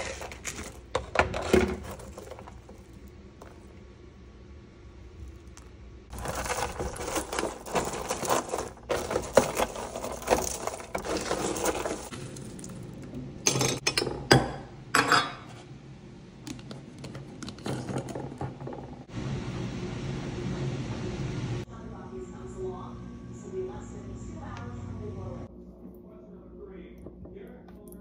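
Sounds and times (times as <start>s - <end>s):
granola rattling into a jar: 6.1s - 12.8s.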